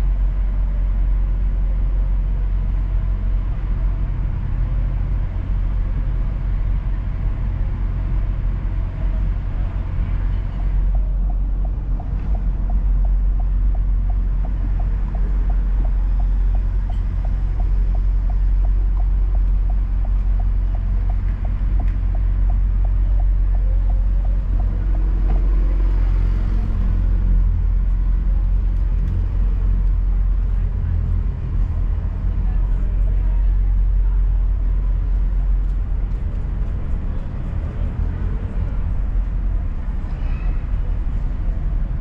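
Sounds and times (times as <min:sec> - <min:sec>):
road and engine rumble: 0:00.0 - 0:42.0
regular ticking: 0:10.8 - 0:26.0.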